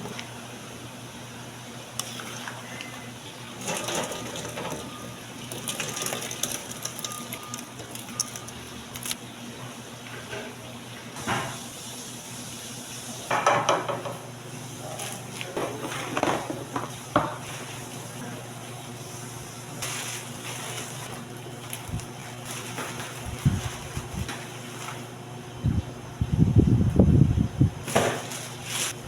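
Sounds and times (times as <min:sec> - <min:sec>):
pots and dishes clattering: 0:03.6 - 0:08.5, 0:15.5 - 0:17.5
steady low hum: 0:13.7 - 0:29.0.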